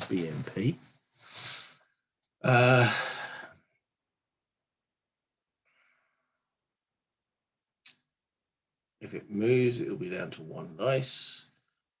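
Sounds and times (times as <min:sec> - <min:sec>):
man sighing: 0:02.4 - 0:03.6.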